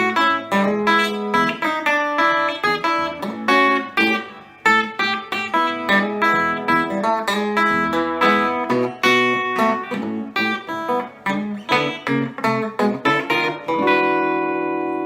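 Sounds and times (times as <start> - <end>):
electric guitar notes and chords: 0.0 - 15.0.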